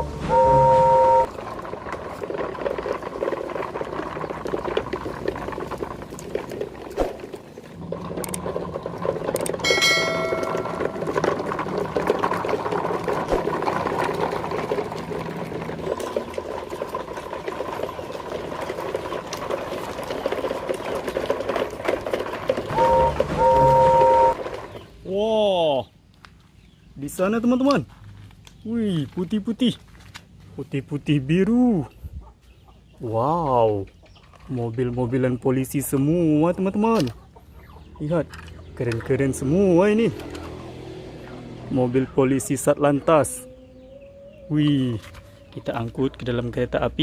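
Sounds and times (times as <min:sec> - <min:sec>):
toy train horn toot: 0:00.0 - 0:01.4, 0:22.7 - 0:24.5
plastic rattle: 0:01.4 - 0:23.4.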